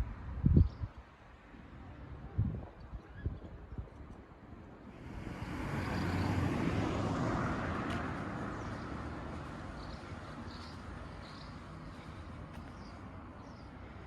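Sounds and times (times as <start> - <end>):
vehicle passing by: 4.9 - 12.2.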